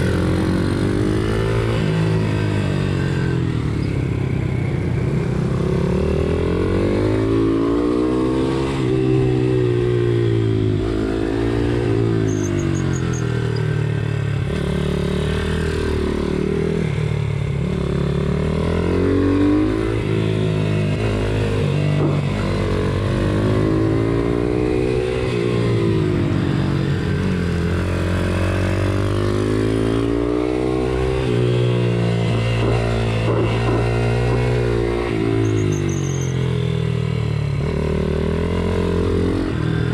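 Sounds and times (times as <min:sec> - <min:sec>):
other motorbike engines: 0:00.0 - 0:39.9.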